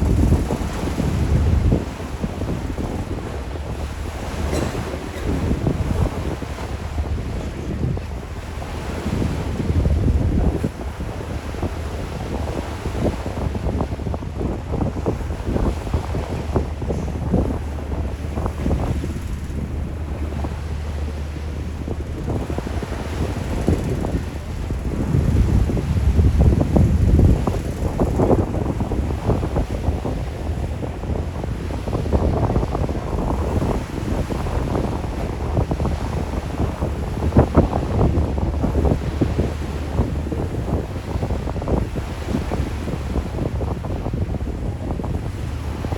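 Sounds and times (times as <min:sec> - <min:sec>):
low rumble of ferry: 0:00.0 - 0:45.9
wind buffeting microphone: 0:00.0 - 0:45.9
low rumble: 0:15.1 - 0:29.2.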